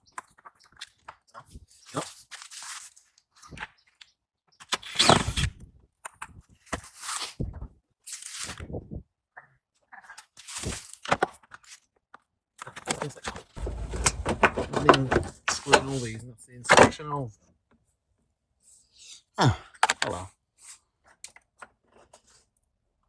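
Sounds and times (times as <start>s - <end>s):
hands scraping plastic liner: 13.6s - 16.1s.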